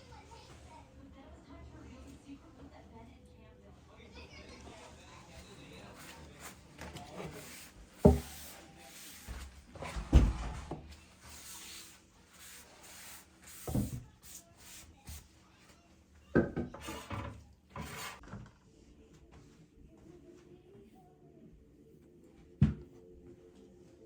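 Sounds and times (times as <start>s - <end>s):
rubbing and scraping: 6.0s - 14.9s
household knocks and thuds: 8.0s - 8.5s.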